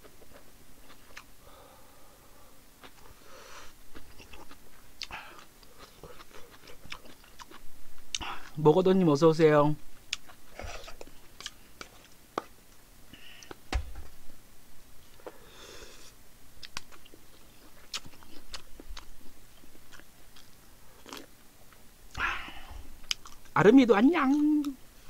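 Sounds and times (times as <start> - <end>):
person chewing food: 0.0 - 8.6, 10.0 - 14.2, 15.0 - 23.6.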